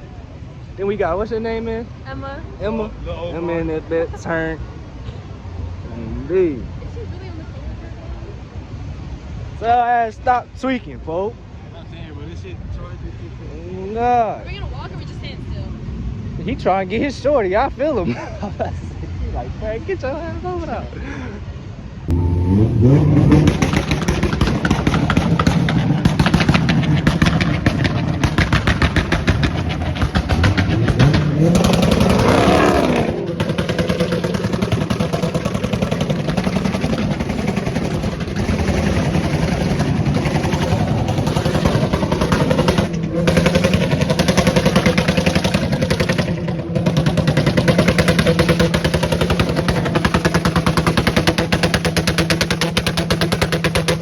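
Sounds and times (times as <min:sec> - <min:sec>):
car engine revving with crackle: 0:22.1 - 0:54.0.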